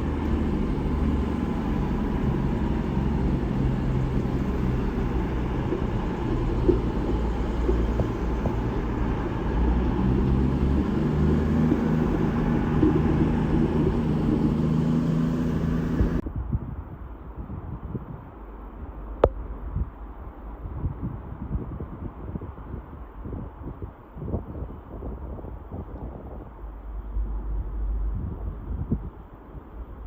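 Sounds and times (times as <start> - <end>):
vehicle engine droning: 0.0 - 16.2, 25.5 - 30.0
road or rail noise: 0.0 - 30.0.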